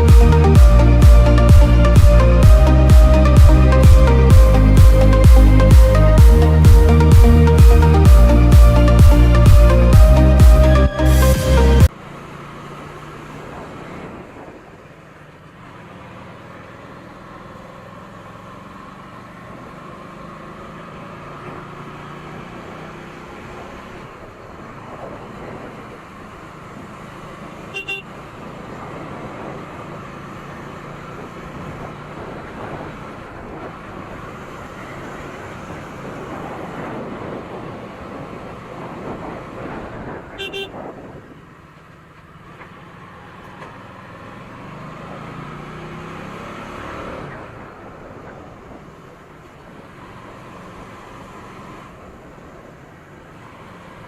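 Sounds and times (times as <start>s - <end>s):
motorcycle engine running: 0.0s - 10.8s
road noise: 0.0s - 54.0s
vehicle horn toot: 27.7s - 28.1s, 40.3s - 40.8s.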